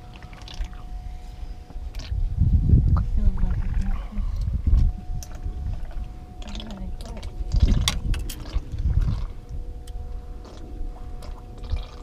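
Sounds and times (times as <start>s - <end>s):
faint steady hum: 0.0s - 12.0s
low wind rumble: 0.0s - 12.0s
fishing tackle clicking and rattling: 5.2s - 9.2s.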